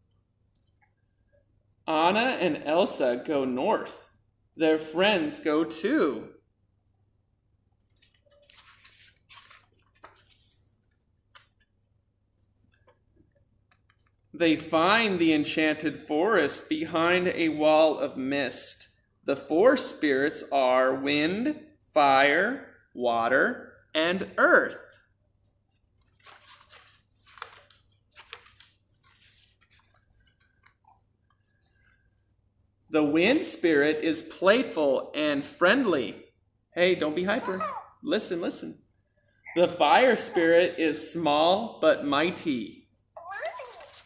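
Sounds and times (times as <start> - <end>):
page turning: 8.0 - 11.8, 25.9 - 31.4, 43.4 - 44.0.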